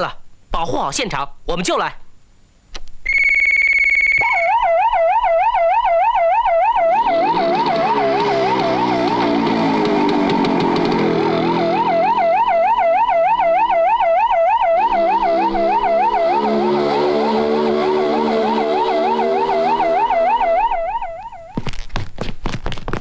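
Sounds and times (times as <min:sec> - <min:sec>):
police siren warbling: 0:03.9 - 0:21.6
low steady drone: 0:13.8 - 0:21.2.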